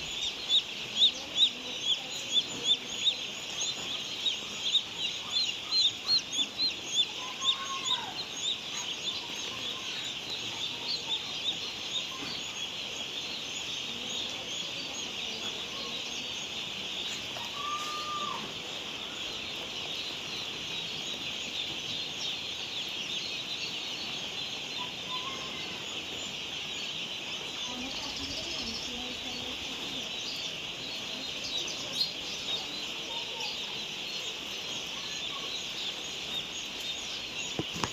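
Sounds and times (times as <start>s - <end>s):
chicks peeping: 0.0s - 37.9s.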